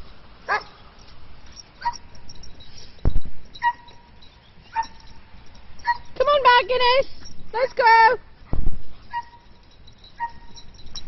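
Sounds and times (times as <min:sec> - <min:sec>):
loud low thump: 0:03.0 - 0:03.3, 0:08.5 - 0:08.8.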